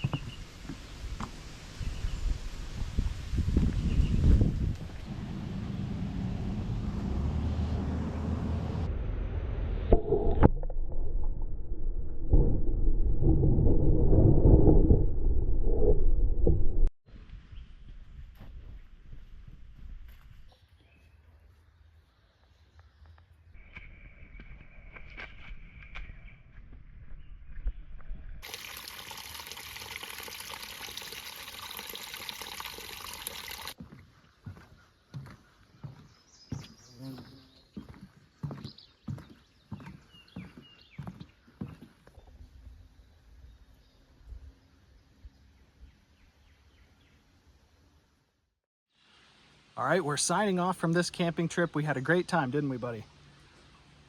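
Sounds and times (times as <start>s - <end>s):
wind buffeting microphone: 1.0s - 7.4s
low rumble: 4.1s - 16.9s
creek water trickling: 28.4s - 33.8s.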